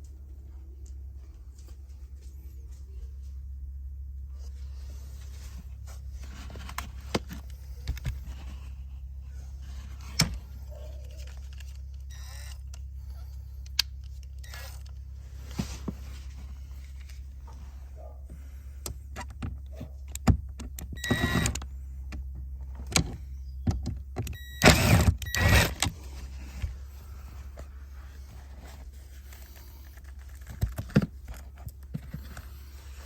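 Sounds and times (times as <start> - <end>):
steady low hum: 0.0 - 33.0
rustling: 4.2 - 20.0, 24.7 - 33.0.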